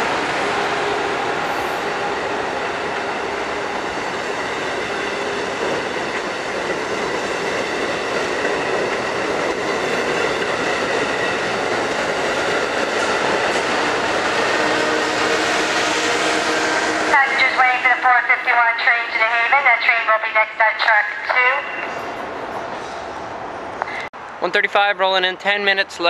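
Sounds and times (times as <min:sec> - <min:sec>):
train wheels rolling on rails: 0:00.0 - 0:18.1.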